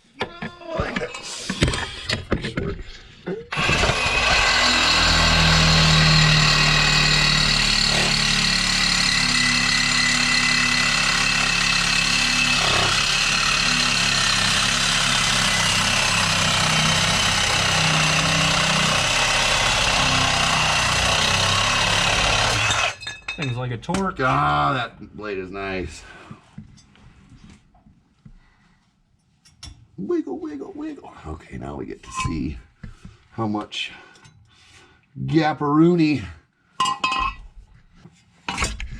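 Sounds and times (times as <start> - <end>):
power saw cutting metal pipe: 3.5 - 23.0.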